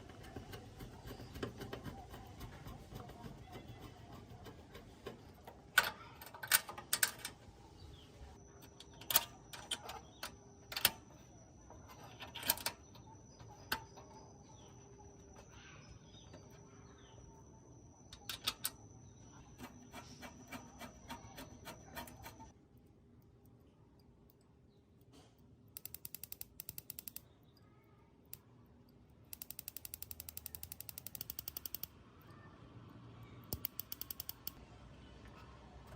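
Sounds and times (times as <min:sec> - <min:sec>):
metal parts and tools clicking: 0:00.0 - 0:07.9, 0:08.6 - 0:15.6, 0:18.1 - 0:22.5, 0:23.2 - 0:27.7, 0:29.2 - 0:32.4, 0:33.4 - 0:34.6
faint high whine: 0:07.7 - 0:22.5.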